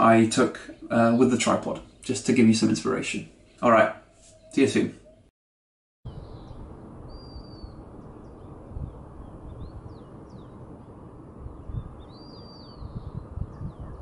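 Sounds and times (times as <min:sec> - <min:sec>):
high thin bird calls: 0:03.3 - 0:05.2, 0:06.1 - 0:07.8.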